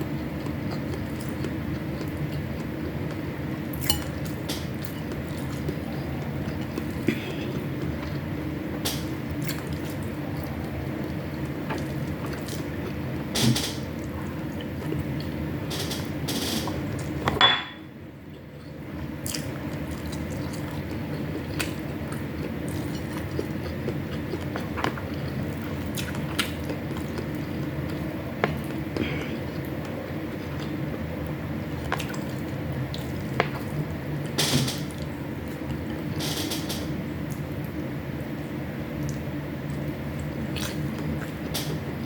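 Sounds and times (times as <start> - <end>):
low background hum: 0.0 - 42.0
chewing: 0.4 - 3.2, 3.8 - 8.2, 18.3 - 30.8, 31.7 - 33.8, 39.0 - 41.7.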